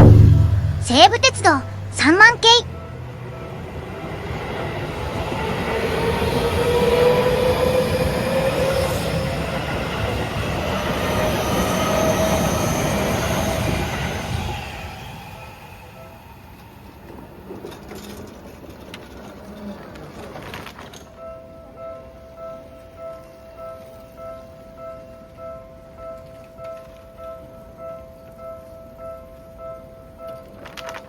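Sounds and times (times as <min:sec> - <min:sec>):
train wheels on rails: 0:00.0 - 0:21.2
electric train whine: 0:01.6 - 0:19.5.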